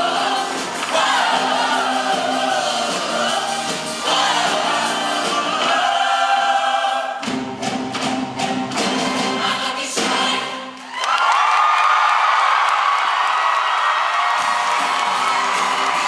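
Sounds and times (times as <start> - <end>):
choir singing: 0.0 - 7.5, 8.2 - 10.9
drum hits: 7.2 - 10.3.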